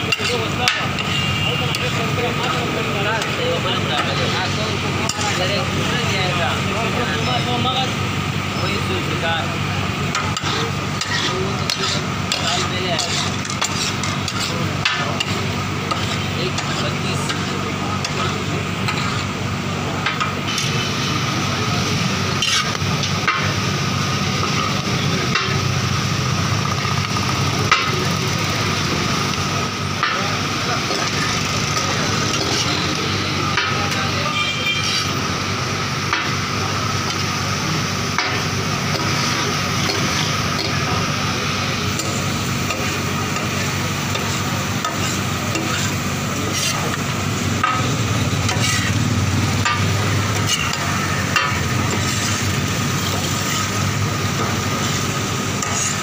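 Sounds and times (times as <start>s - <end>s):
meat sizzling on a griddle: 0.0s - 56.0s
metal spatulas scraping griddle: 0.1s - 1.9s, 10.1s - 19.4s, 22.3s - 23.5s, 30.0s - 35.3s, 38.2s - 40.9s, 41.9s - 56.0s.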